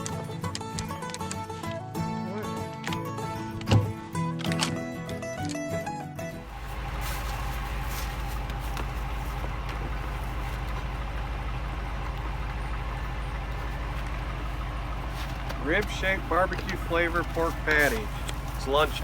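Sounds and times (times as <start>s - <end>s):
vehicle engine idling: 6.4s - 19.0s.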